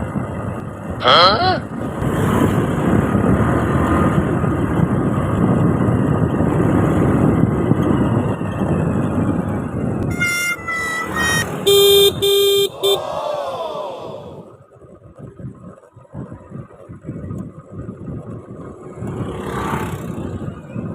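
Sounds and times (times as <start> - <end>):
wind and road noise: 0.0 - 20.9
vehicle horn honking: 10.1 - 13.1.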